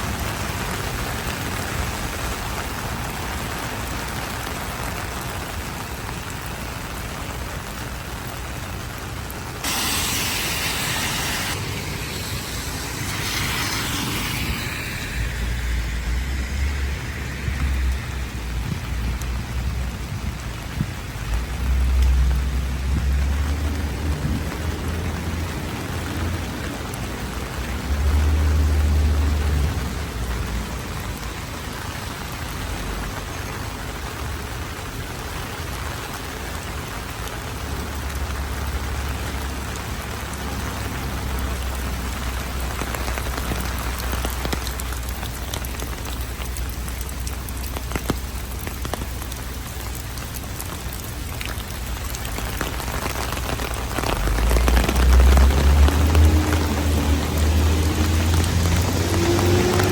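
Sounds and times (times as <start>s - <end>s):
heavy rain pattering: 0.0s - 59.9s
low rumble: 9.6s - 24.9s.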